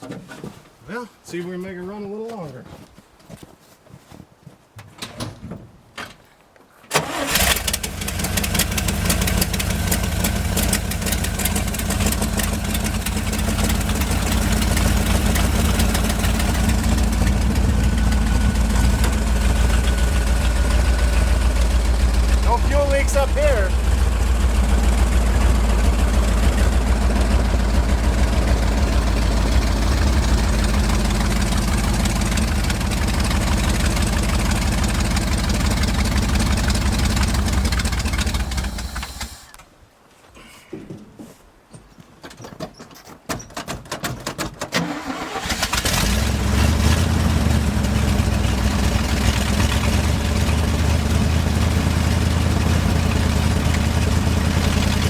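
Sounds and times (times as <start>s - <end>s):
engine cranking: 6.9s - 39.5s, 43.4s - 55.0s
truck engine running: 7.0s - 39.5s, 44.8s - 55.0s.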